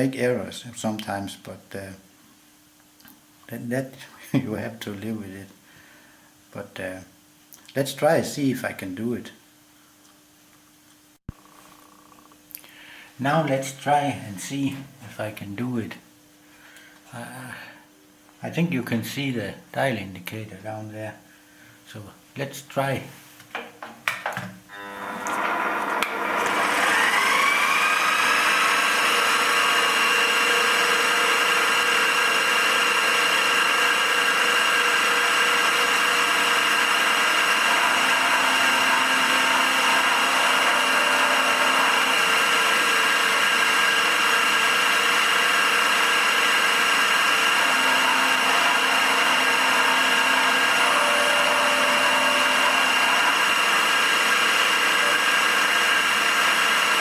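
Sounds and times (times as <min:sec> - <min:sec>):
milling machine whine: 0:24.7 - 0:57.0.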